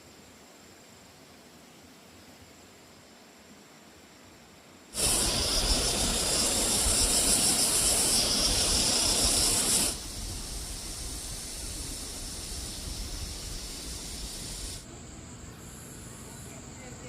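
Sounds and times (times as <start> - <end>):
loud steady hiss: 0.0 - 17.0.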